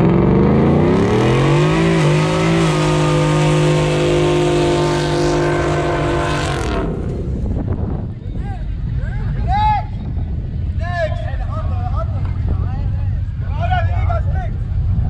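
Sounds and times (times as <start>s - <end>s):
truck engine revving: 0.0s - 7.7s.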